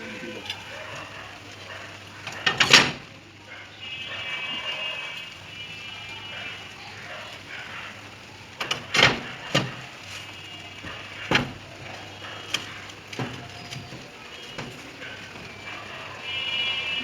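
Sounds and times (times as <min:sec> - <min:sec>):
knocks on metal sheet roof: 0:08.6 - 0:10.0, 0:10.8 - 0:15.5.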